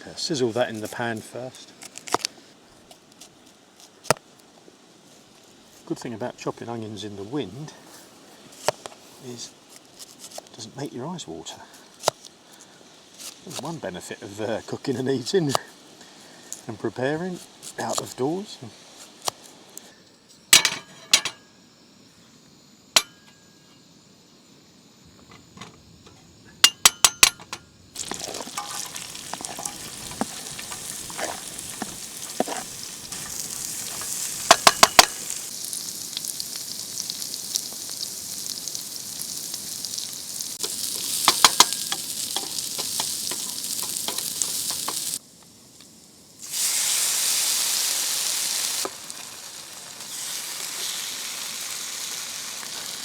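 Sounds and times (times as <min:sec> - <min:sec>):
onion sizzling in a frying pan: 0:00.0 - 0:19.8, 0:27.9 - 0:53.0
utensil clinking against pan: 0:20.6 - 0:21.4, 0:26.6 - 0:31.4, 0:33.9 - 0:35.2, 0:41.2 - 0:45.1.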